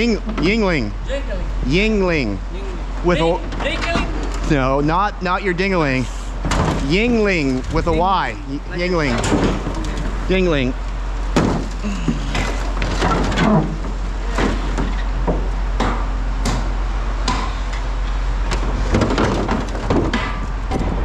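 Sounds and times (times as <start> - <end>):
steady low hum: 0.0 - 21.0
faint voices: 11.7 - 12.7
hard objects knocking and clattering: 18.5 - 21.0.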